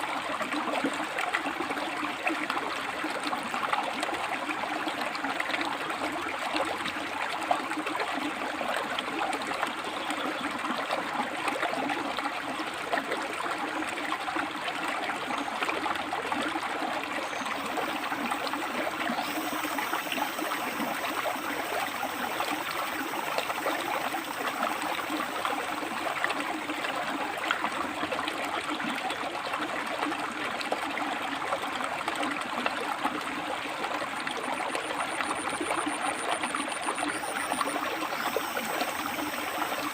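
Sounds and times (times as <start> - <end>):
water rushing over stones: 16.1 - 28.4, 31.9 - 39.9.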